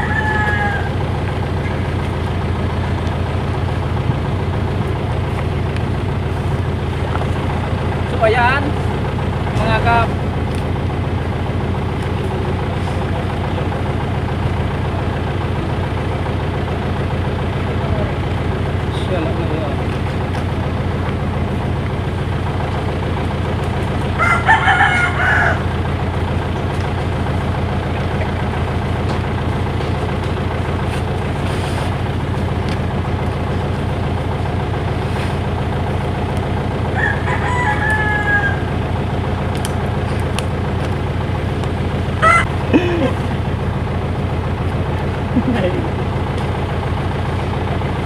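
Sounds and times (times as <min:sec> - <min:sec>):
rooster crowing: 0:00.0 - 0:01.3, 0:24.1 - 0:26.0, 0:36.8 - 0:39.4, 0:42.2 - 0:42.5
engine droning: 0:00.0 - 0:48.0.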